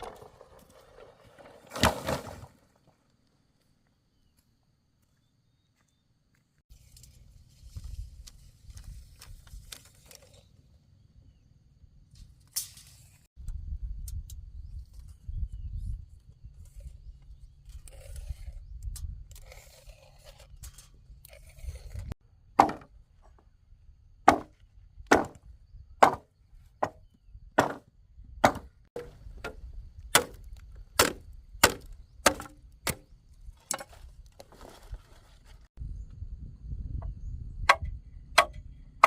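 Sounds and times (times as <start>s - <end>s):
blade chopping into wood: 22.6s - 22.9s, 24.3s - 25.4s, 26.0s - 27.0s, 27.6s - 33.1s.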